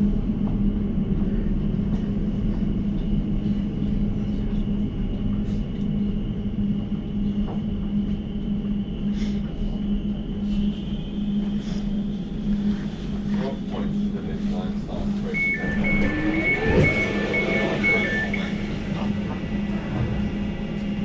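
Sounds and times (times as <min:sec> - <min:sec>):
train rumbling through tunnel: 0:00.0 - 0:21.0
thin high whine: 0:15.2 - 0:19.7.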